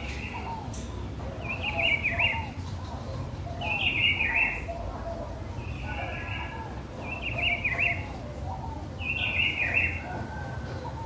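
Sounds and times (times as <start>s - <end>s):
faint bird calls: 0.0s - 11.0s.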